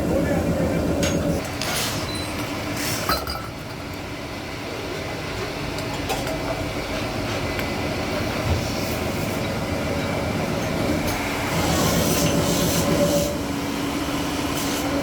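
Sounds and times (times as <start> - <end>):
steady machine noise: 0.0 - 1.4.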